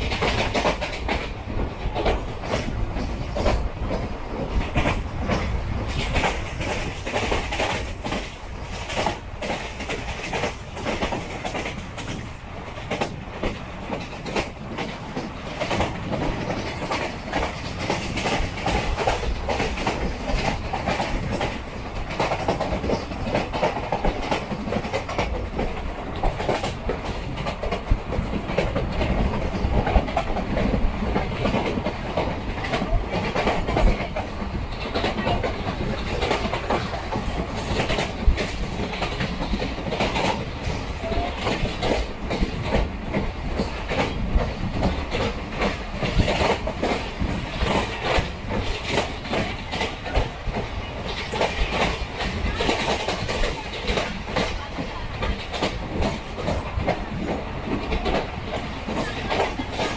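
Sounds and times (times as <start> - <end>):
train running noise: 0.0 - 59.9
wheels clicking over rail joints: 0.0 - 59.9.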